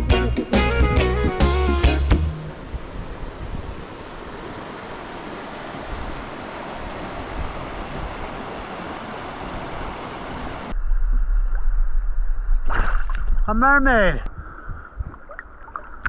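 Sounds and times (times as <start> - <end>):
water rushing: 2.3 - 10.7
low rumble: 10.7 - 13.6.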